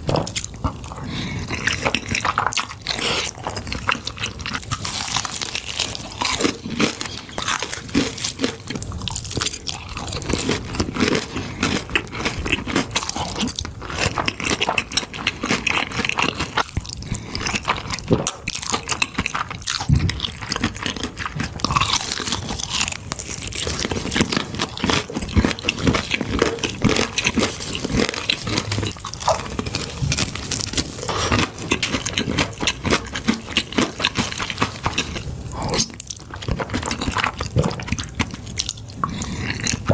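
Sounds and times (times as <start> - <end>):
person biting and chewing food: 0.0 - 39.9.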